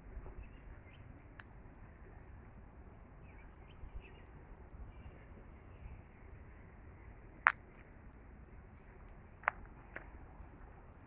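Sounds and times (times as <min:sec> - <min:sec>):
low wind rumble: 0:00.0 - 0:11.0
faint bird chirps: 0:03.2 - 0:06.3.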